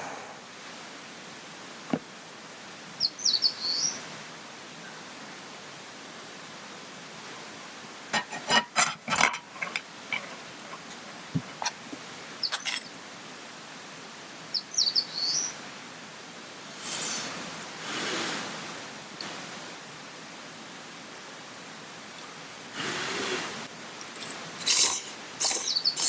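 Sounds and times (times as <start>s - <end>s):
steady rushing hiss: 0.0s - 14.7s, 15.3s - 26.0s
bird chirping: 3.0s - 4.0s, 10.1s - 13.0s, 14.5s - 15.6s, 24.1s - 26.0s.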